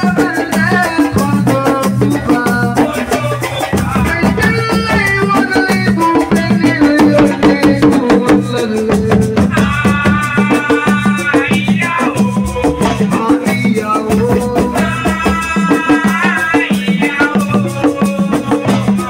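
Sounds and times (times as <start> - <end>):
fast drumming: 0.0 - 19.0
shaker percussion: 0.0 - 19.0.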